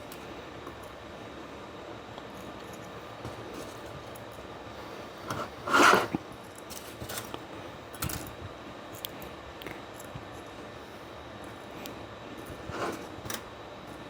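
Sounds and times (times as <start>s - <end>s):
metal parts clattering: 6.5s - 7.4s.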